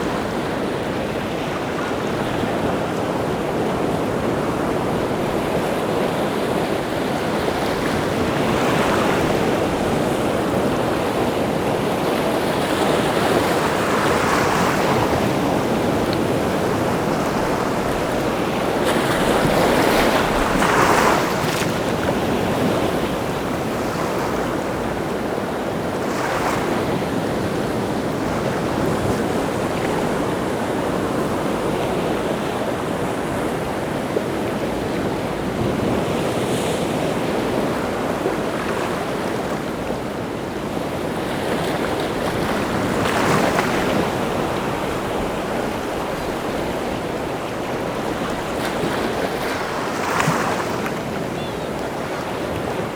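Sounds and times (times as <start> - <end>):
sea surf waves breaking: 35.7 - 52.9.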